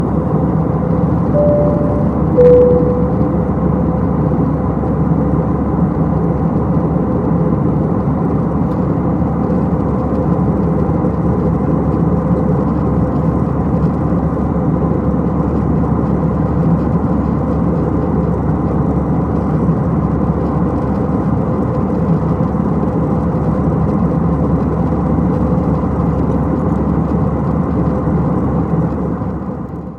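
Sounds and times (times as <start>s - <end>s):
two-tone cabin chime: 1.4s - 3.4s.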